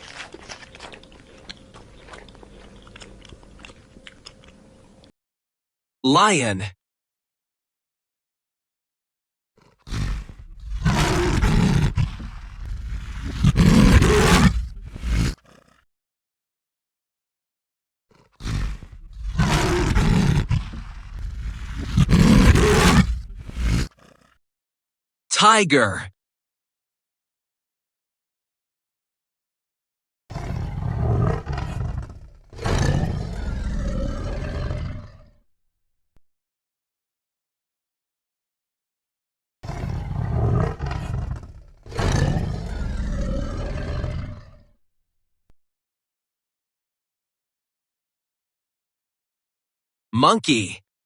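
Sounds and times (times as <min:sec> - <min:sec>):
lion roaring: 0:09.6 - 0:15.8, 0:18.2 - 0:24.3, 0:30.3 - 0:35.4, 0:39.6 - 0:44.7.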